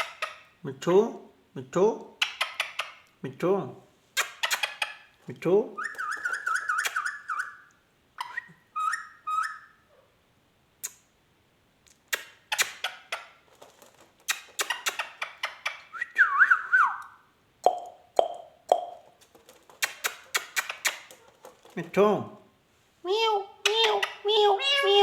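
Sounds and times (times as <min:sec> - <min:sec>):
parakeet calling: 0:05.7 - 0:09.9, 0:14.3 - 0:15.9, 0:19.8 - 0:21.5.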